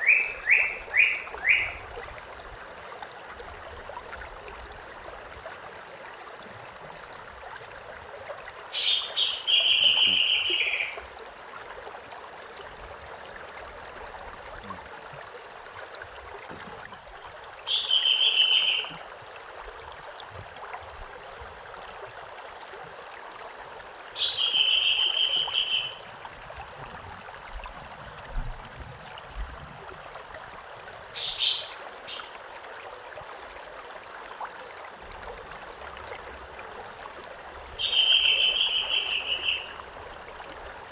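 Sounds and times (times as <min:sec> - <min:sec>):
bird singing trills: 0:00.0 - 0:01.8, 0:08.8 - 0:11.0, 0:17.7 - 0:18.9, 0:24.2 - 0:26.0, 0:31.2 - 0:32.6, 0:37.8 - 0:39.8
stream running: 0:00.0 - 0:40.9.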